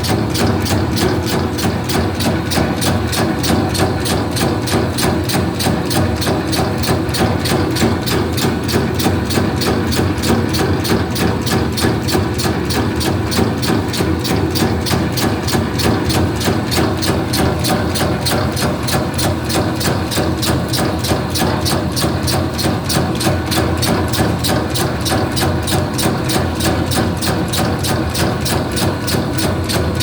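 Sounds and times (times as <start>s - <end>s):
machine motor hum: 0.0s - 30.0s
rapid machine clacking: 0.0s - 30.0s.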